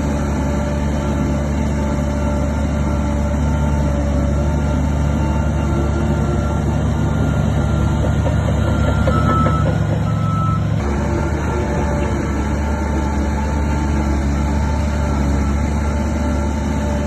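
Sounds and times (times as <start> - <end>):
heavy machinery diesel engines: 0.0 - 17.0
reversing alarm beeping: 2.9 - 13.4.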